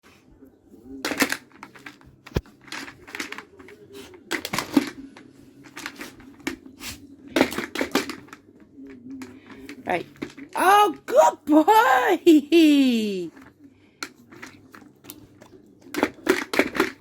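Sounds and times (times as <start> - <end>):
dog toy clicking and rattling: 15.8 - 17.0.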